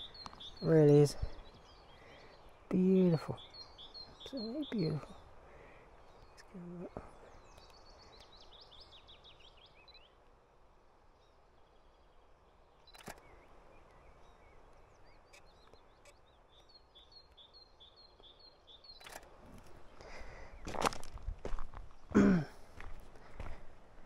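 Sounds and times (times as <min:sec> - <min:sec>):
faint songbirds singing: 0:00.0 - 0:24.0
low outdoor background noise: 0:00.0 - 0:24.0
sharp click: 0:12.9 - 0:13.2.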